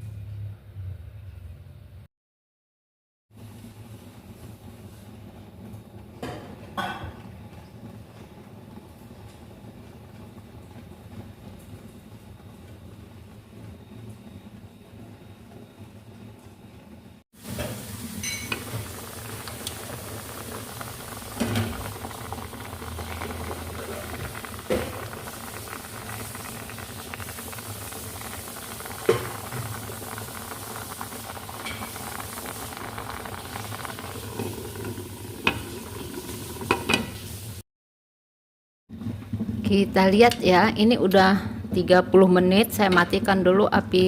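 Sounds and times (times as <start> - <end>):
stew bubbling and steam hissing: 17.4 - 37.6.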